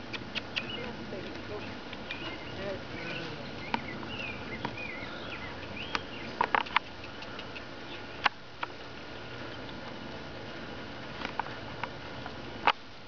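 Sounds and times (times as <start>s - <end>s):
small birds chirping: 0.0s - 10.0s
sharp clicks: 5.6s - 8.7s.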